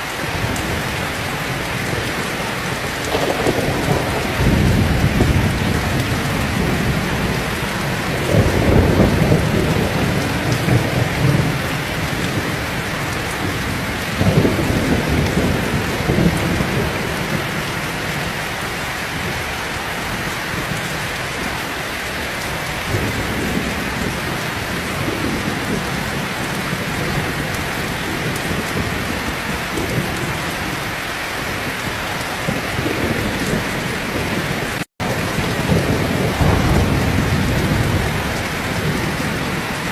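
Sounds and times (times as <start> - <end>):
heavy rain pouring: 0.0 - 39.9
thunder rolling low: 0.2 - 18.3, 32.3 - 39.9.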